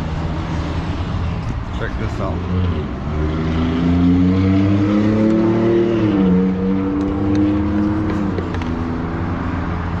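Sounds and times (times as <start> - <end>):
truck engine pulling and shifting: 4.6 - 10.0.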